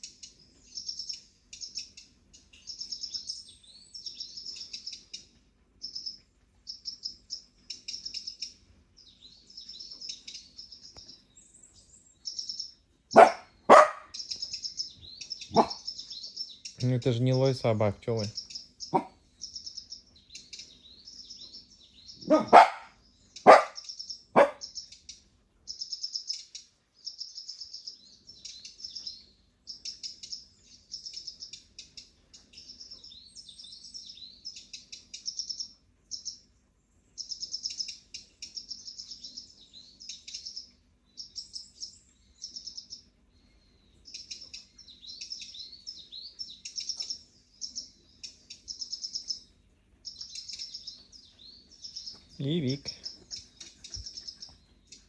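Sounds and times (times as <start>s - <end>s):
recorded birdsong chirps and trills: 0.0s - 55.0s
dog barking: 13.1s - 14.2s, 15.5s - 15.8s, 18.9s - 19.2s, 22.2s - 24.7s.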